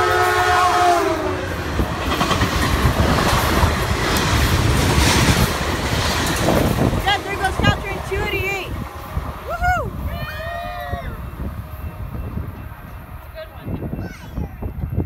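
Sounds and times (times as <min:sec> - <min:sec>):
train horn chord: 0:00.0 - 0:01.9
train passing rumble and clatter: 0:00.0 - 0:15.0.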